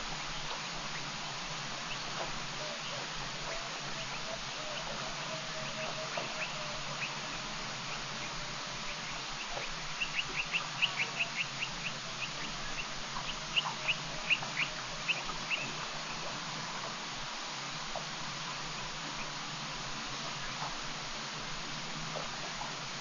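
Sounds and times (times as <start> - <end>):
steady background hiss: 0.0 - 23.0
bird chirping: 1.8 - 16.4.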